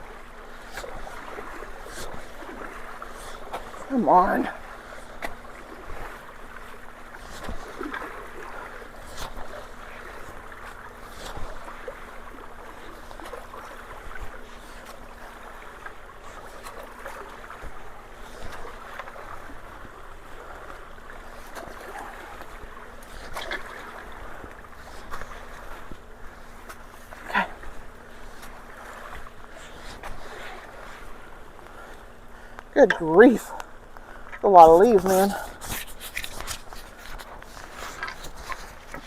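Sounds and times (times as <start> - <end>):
water rushing through culvert: 0.0 - 31.0.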